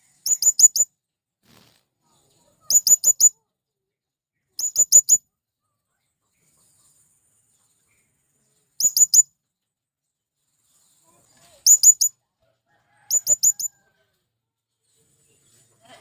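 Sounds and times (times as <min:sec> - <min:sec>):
parrot shrill high-pitched calls: 0:11.7 - 0:12.1.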